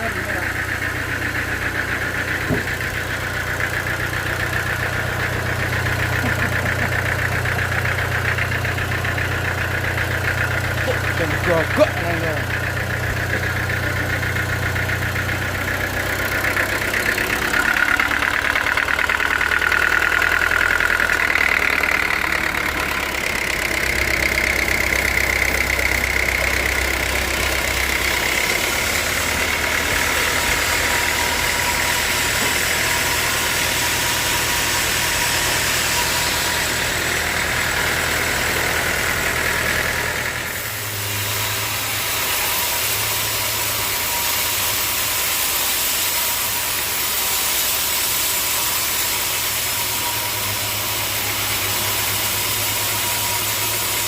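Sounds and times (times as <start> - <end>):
sawmill engine running: 0.0 - 54.0
wavering high whine: 25.5 - 37.6.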